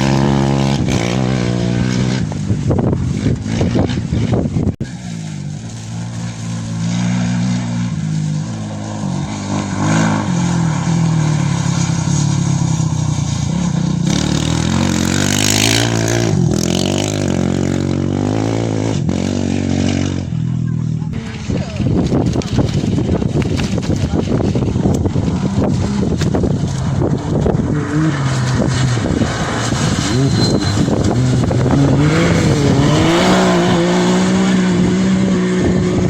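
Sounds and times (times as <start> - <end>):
vehicle engine running: 10.0 - 36.0.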